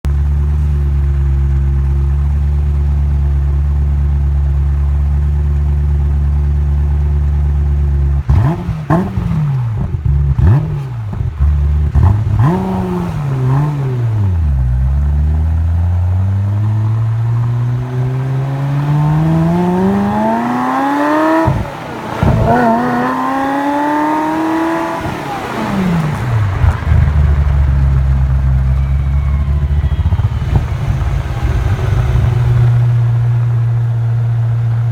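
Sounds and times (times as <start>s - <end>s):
sports car engine revving: 5.9s - 28.8s.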